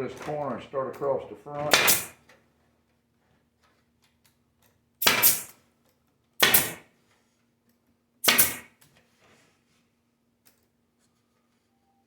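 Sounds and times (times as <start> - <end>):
stapler snapping: 1.7 - 2.1, 5.0 - 5.5, 6.4 - 6.8, 8.2 - 8.7.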